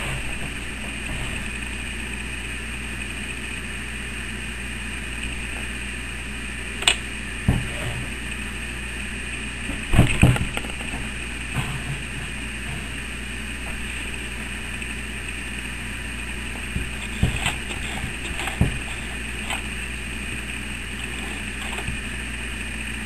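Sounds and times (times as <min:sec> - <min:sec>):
dull knocks: 0:00.0 - 0:01.7, 0:16.5 - 0:19.6.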